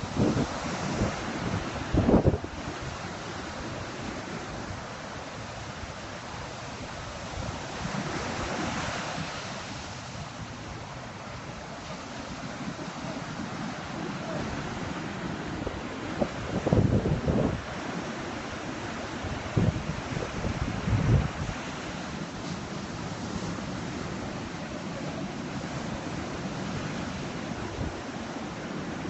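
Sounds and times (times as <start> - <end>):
sea waves washing: 0.0 - 29.0
wind on microphone: 0.0 - 29.0.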